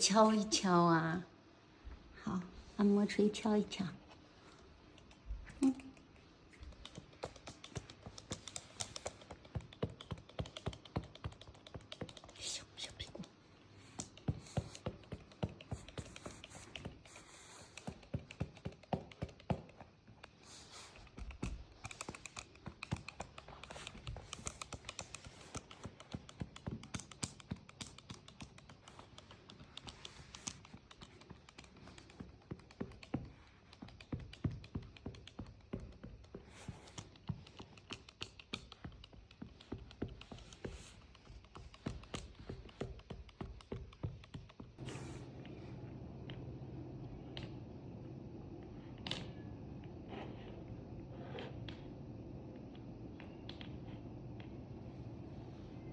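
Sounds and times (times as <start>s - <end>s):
massage hammer tapping rapidly: 6.5s - 12.4s, 13.9s - 44.8s.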